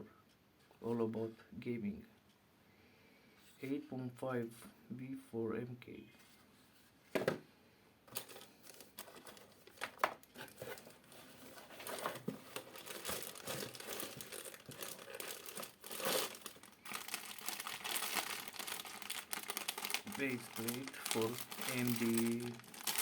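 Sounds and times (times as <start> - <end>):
plastic packaging crinkling: 8.1 - 23.0.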